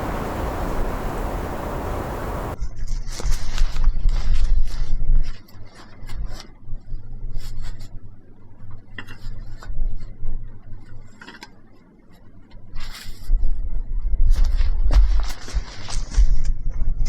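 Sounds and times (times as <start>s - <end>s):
low hum: 0.0s - 2.6s.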